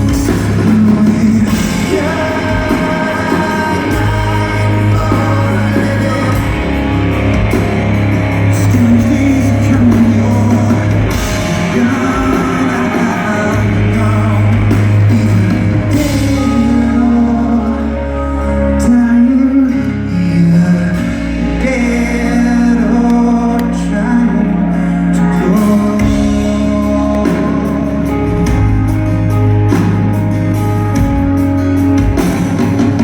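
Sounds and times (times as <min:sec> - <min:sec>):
heavy bass: 0:00.0 - 0:33.0
lead vocal singing: 0:00.0 - 0:33.0
rock band playing: 0:00.0 - 0:33.0.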